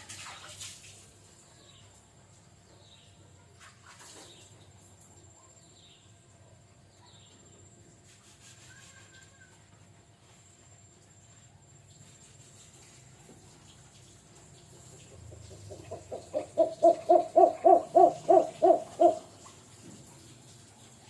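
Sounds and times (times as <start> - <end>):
bird hooting calls: 15.3 - 19.4.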